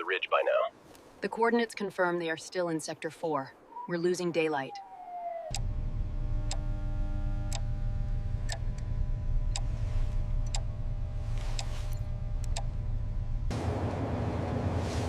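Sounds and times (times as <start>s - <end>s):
steady low rumble: 5.5s - 15.0s.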